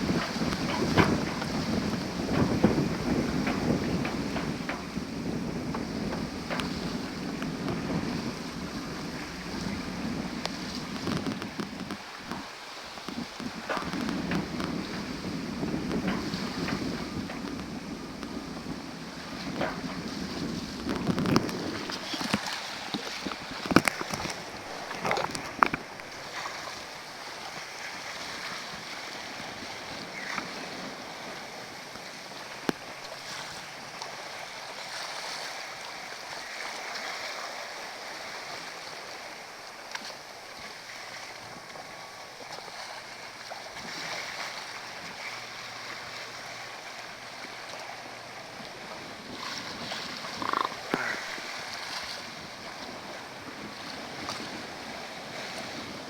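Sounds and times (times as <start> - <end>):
water rushing along a hull: 0.0 - 56.0.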